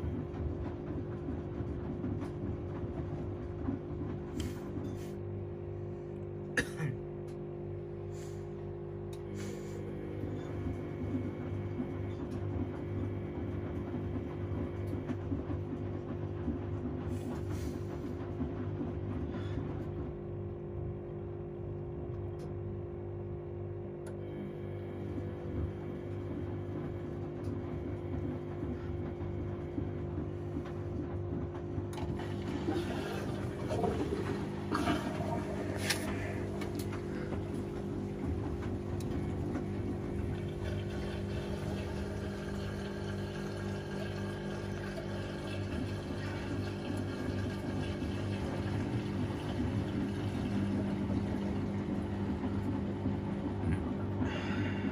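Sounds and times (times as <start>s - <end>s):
washing machine drum churning: 0.0s - 54.9s
washing machine motor hum: 0.0s - 54.9s.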